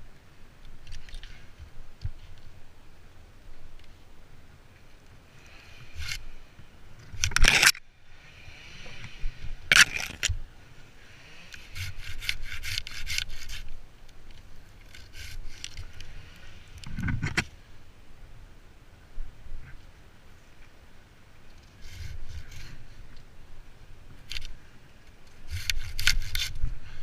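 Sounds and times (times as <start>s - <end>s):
wood scraping and rubbing: 11.4s - 17.5s, 25.3s - 26.6s.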